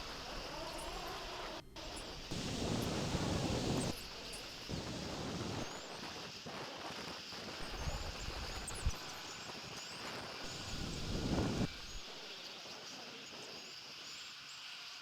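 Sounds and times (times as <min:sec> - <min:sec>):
small birds chirping: 0:00.0 - 0:06.1, 0:07.6 - 0:14.6
wind noise on microphone: 0:02.2 - 0:04.0, 0:04.7 - 0:06.2, 0:06.9 - 0:09.2, 0:10.4 - 0:12.1
low rumbling gust: 0:10.5 - 0:12.0.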